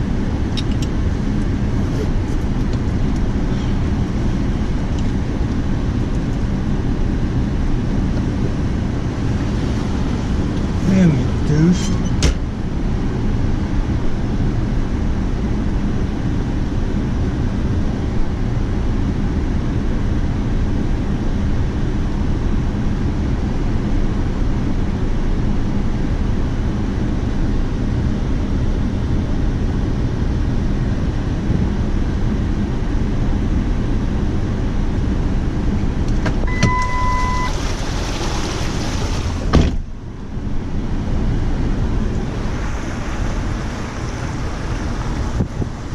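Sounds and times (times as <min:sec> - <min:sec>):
motor vehicle engine rumbling: 0:00.0 - 0:45.9
short electronic beep: 0:36.5 - 0:37.6.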